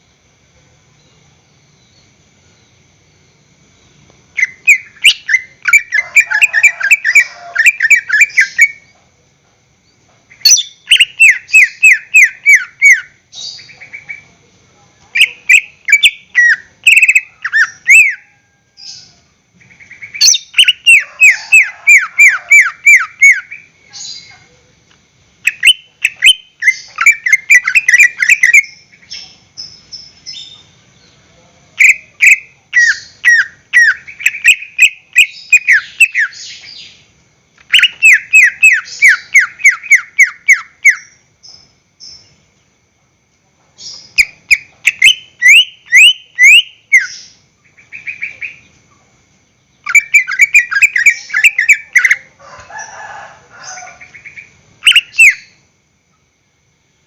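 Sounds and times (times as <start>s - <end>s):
bird singing whistled notes: 4.4s - 8.9s, 10.3s - 14.2s, 15.2s - 24.3s, 25.5s - 31.2s, 31.8s - 37.0s, 37.7s - 42.4s, 43.8s - 48.7s, 49.8s - 52.3s, 54.2s - 55.6s.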